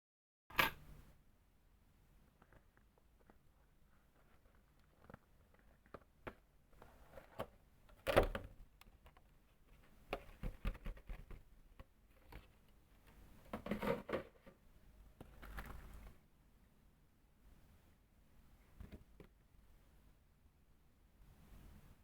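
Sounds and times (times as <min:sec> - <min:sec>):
rustling and scraping: 0:02.3 - 0:07.6, 0:12.1 - 0:16.2.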